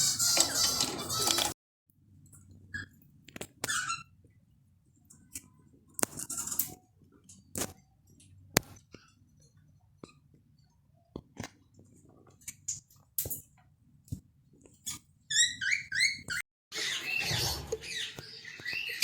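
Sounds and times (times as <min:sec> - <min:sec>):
birds clicking and tapping: 0:00.0 - 0:01.6, 0:14.8 - 0:19.0.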